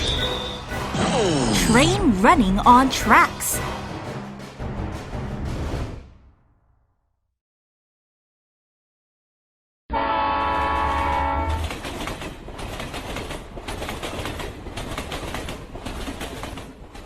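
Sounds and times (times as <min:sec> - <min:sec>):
train horn blowing: 0:09.9 - 0:11.7
train clattering on tracks: 0:10.4 - 0:17.0.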